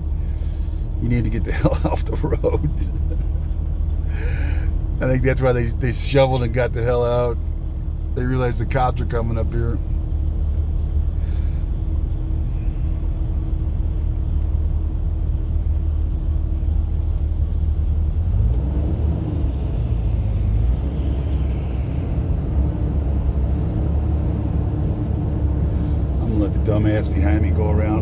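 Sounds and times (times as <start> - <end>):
faint hum: 0.0 - 18.2
car engine and tyres rumbling: 0.0 - 28.0.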